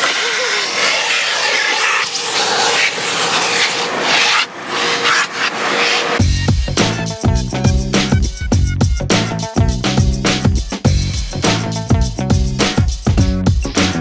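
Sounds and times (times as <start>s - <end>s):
vacuum hose sucking air: 0.0s - 6.2s
music: 6.2s - 14.0s.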